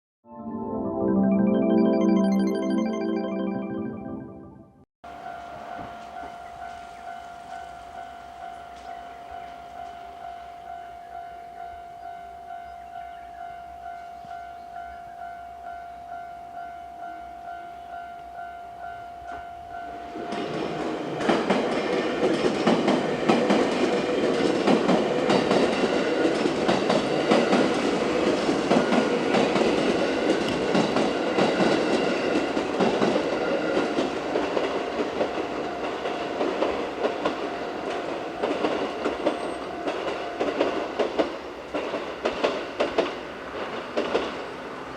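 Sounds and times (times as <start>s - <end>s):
level-crossing warning bell dinging: 5.1s - 41.0s
train wheels clattering over rail joints: 20.2s - 35.4s, 36.4s - 44.6s.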